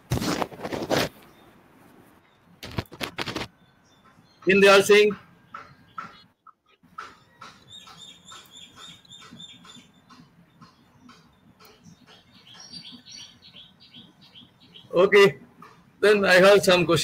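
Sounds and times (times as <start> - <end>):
faint bird chirping: 1.2 - 16.0.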